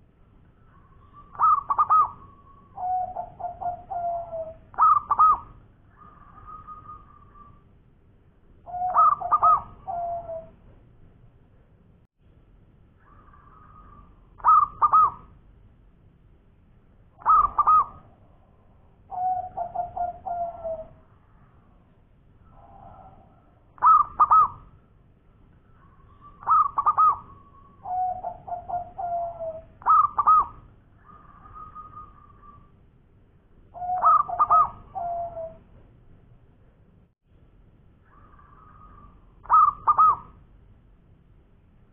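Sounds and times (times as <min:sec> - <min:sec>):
dove cooing: 0:00.7 - 0:07.6, 0:08.7 - 0:10.6, 0:13.0 - 0:15.3, 0:17.2 - 0:18.4, 0:19.0 - 0:21.1, 0:22.5 - 0:24.7, 0:25.8 - 0:32.7, 0:33.7 - 0:35.7, 0:38.1 - 0:40.4.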